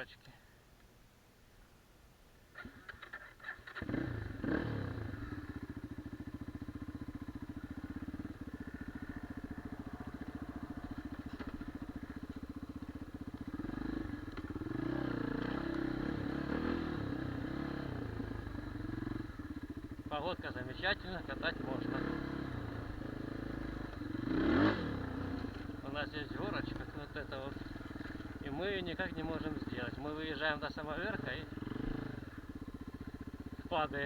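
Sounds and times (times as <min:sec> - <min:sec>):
motorcycle engine idling and revving: 0:02.5 - 0:34.0.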